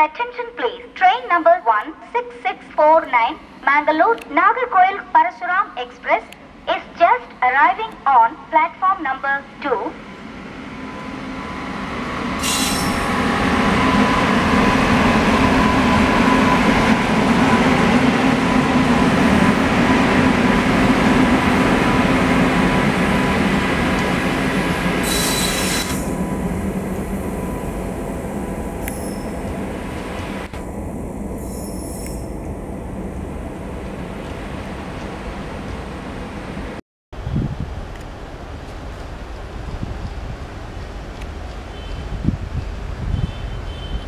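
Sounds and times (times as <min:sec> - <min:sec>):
train wheels on rails: 0:10.2 - 0:30.7, 0:37.8 - 0:43.2
brief high squeals: 0:12.4 - 0:13.1, 0:25.0 - 0:26.1, 0:31.4 - 0:32.3.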